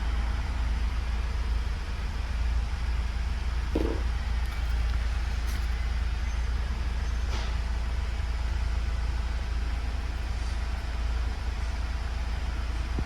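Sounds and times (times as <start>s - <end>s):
vehicle rumble: 0.0s - 13.0s
dull knock: 3.8s - 4.1s.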